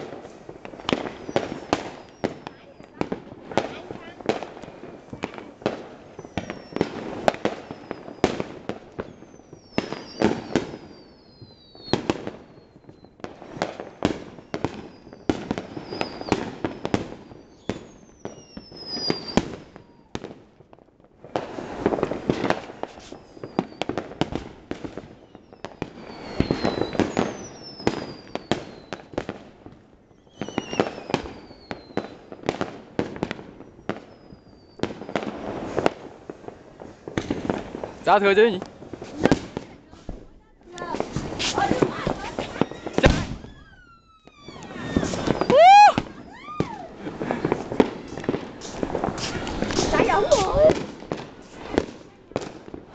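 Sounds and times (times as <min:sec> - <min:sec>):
fireworks bangs and pops: 0:00.0 - 0:52.9
firework whistles falling in pitch: 0:00.9 - 0:02.6, 0:06.1 - 0:08.4, 0:09.0 - 0:20.3, 0:22.3 - 0:24.0, 0:25.0 - 0:29.2, 0:30.0 - 0:32.2, 0:33.6 - 0:35.3, 0:41.2 - 0:50.8.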